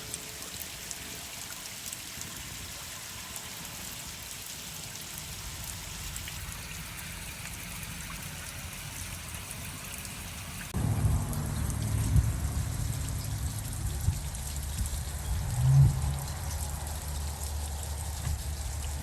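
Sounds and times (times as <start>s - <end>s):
water trickling down rain chain: 0.0s - 19.0s.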